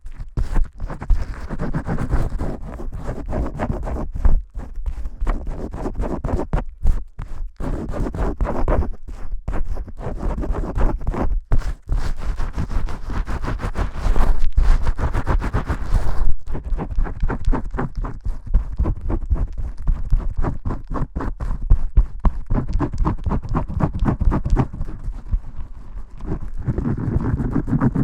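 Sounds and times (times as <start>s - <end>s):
fingers scrubbing lathered hair: 12.4s - 28.0s.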